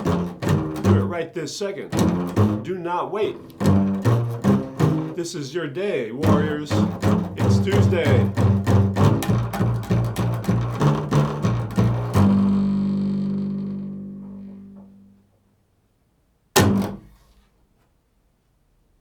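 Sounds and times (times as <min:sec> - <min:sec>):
plucked string notes: 0:00.0 - 0:05.2, 0:06.2 - 0:15.3, 0:16.6 - 0:17.2
thump: 0:16.6 - 0:17.4.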